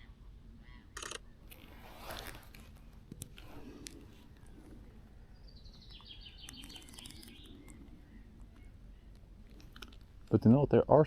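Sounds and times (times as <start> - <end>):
low outdoor rumble: 0.0 - 11.0
sharp clicks: 1.0 - 1.2, 5.8 - 7.8
small bird singing: 5.1 - 9.8.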